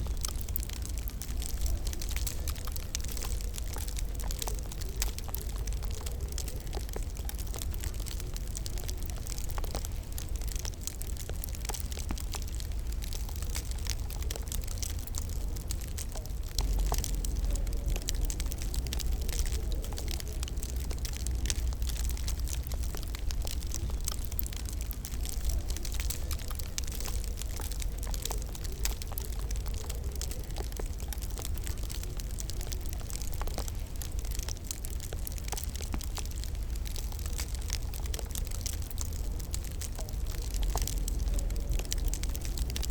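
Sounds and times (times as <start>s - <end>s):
low rumble of burning: 0.0s - 42.9s
wood fire snaps and pops: 0.0s - 42.9s.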